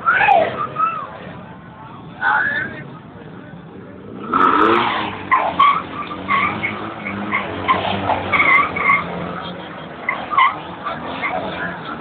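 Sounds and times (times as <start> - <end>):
tyre squeals and chirps: 4.8 - 9.2, 10.0 - 12.0.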